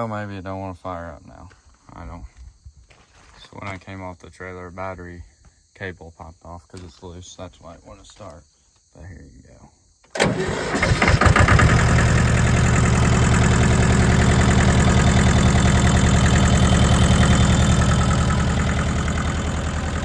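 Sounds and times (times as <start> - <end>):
diesel tractor engine idling: 10.2 - 20.0.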